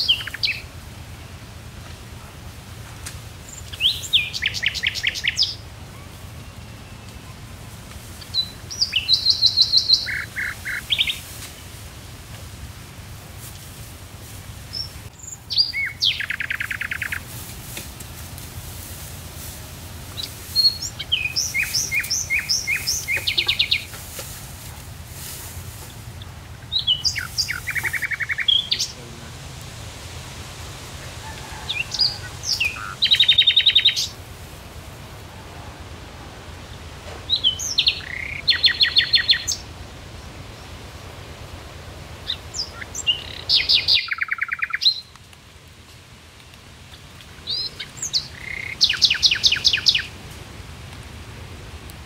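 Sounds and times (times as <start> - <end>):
songbird singing with trill: 0.0 - 0.7, 3.4 - 7.5, 8.2 - 11.6, 14.7 - 17.3, 20.1 - 24.0, 26.2 - 29.0, 31.3 - 34.2, 37.3 - 39.7, 42.2 - 45.2, 47.4 - 50.2
steady low hum: 0.0 - 31.4.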